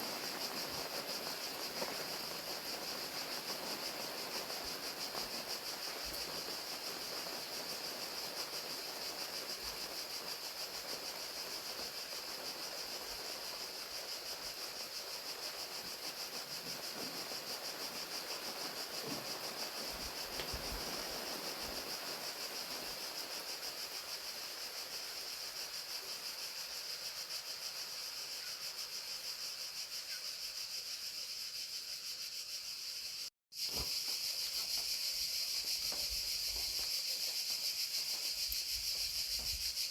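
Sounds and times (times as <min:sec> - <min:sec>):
rain falling: 0:00.0 - 0:26.3
crickets chirping: 0:00.0 - 0:39.9.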